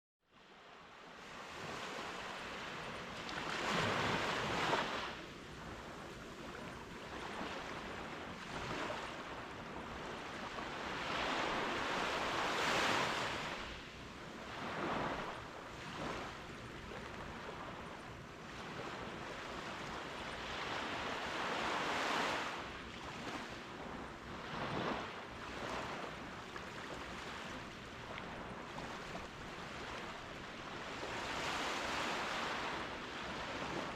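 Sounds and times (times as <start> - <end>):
waves crashing on a beach: 0.4 - 33.9.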